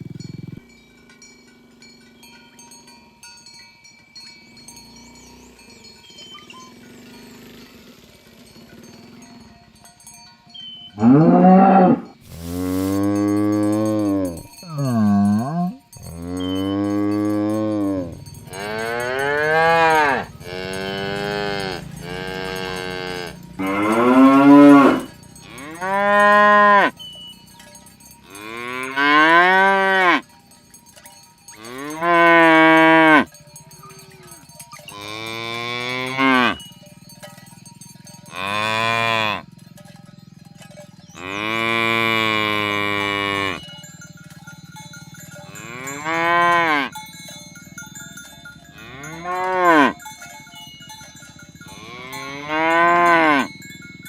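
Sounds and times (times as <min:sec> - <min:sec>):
cows mooing: 0:10.6 - 0:30.3, 0:31.5 - 0:37.2, 0:38.1 - 0:39.8, 0:41.0 - 0:54.0.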